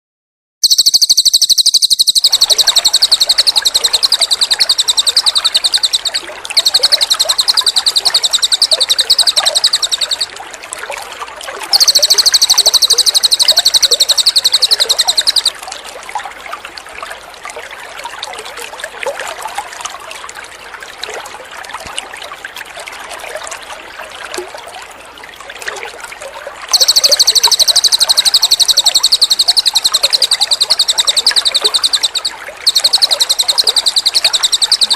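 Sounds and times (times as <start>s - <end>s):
bird trilling: 0.6s - 10.3s, 11.7s - 15.5s, 26.7s - 34.9s
water trickling: 0.6s - 34.9s.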